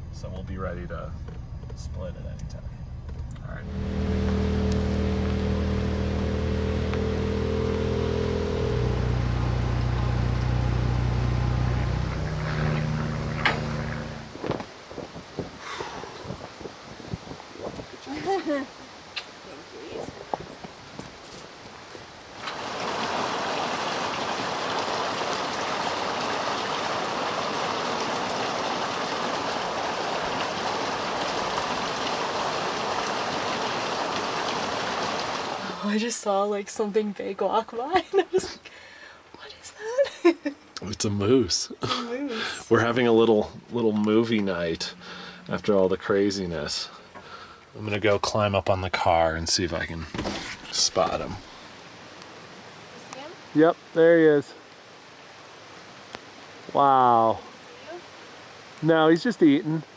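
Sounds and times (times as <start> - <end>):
car engine humming: 0.0 - 14.8, 40.3 - 53.3
heavy rainfall: 3.5 - 39.0, 39.8 - 59.9.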